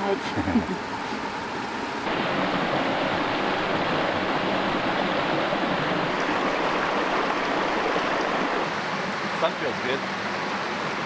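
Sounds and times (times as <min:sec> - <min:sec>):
creek running over rocks: 0:00.0 - 0:11.0.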